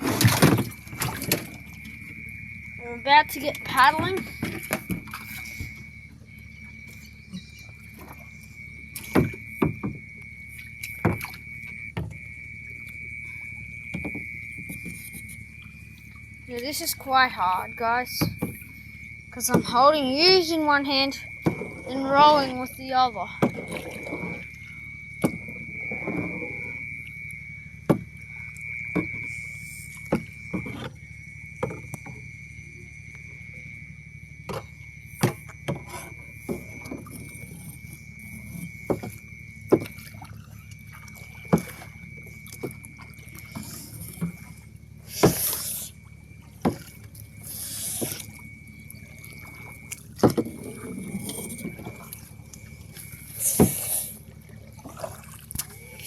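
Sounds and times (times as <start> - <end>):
steady high whine: 0.0 - 56.0
water splashes: 0.0 - 56.0
paddle knocking against canoe hull: 7.6 - 12.3, 13.9 - 15.4, 18.2 - 18.7, 21.4 - 22.4, 23.4 - 24.5, 25.1 - 26.4, 27.8 - 28.2, 28.9 - 29.3, 30.0 - 31.0, 31.6 - 32.3, 34.4 - 37.8, 38.6 - 47.3.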